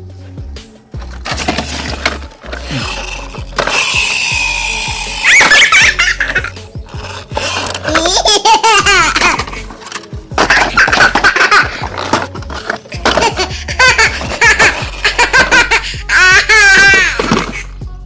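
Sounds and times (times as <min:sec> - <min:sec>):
background music: 0:00.0 - 0:18.0
high-pitched laughing and giggling: 0:03.8 - 0:06.6, 0:07.4 - 0:09.8, 0:10.4 - 0:17.7.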